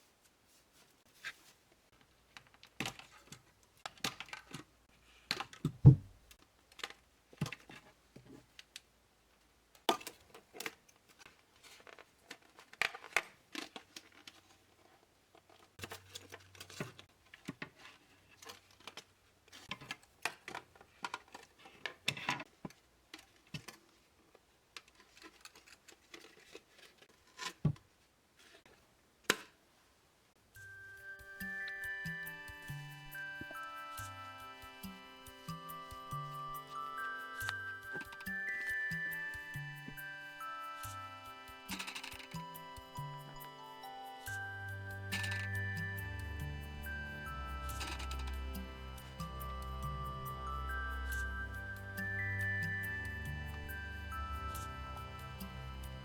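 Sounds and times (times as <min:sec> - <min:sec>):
plastic and cardboard crinkling: 0:09.9 - 0:28.9.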